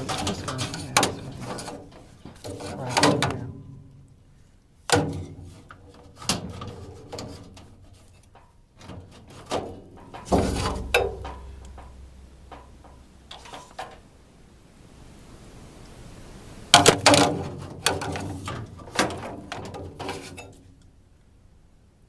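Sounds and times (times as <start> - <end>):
metal parts knocking and scraping: 0.0 - 3.9, 4.9 - 14.1, 16.8 - 20.6.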